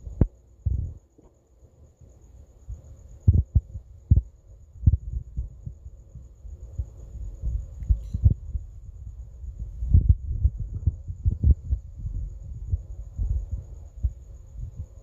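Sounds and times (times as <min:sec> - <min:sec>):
low thumps on microphone: 0:00.0 - 0:01.4, 0:02.7 - 0:15.0.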